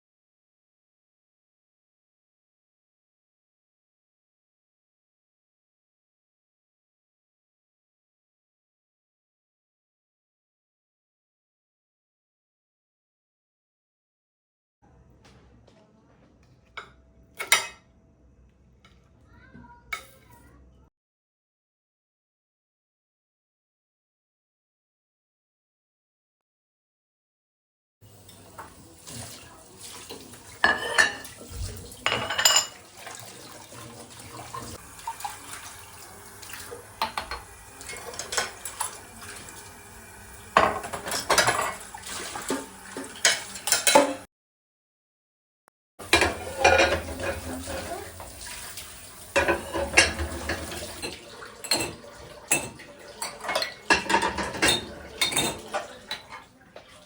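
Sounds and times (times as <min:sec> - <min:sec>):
dishes and cutlery clinking: 0:16.6 - 0:17.9, 0:19.9 - 0:20.4, 0:28.3 - 0:39.6, 0:40.5 - 0:44.3, 0:46.0 - 0:48.6, 0:49.3 - 0:57.0.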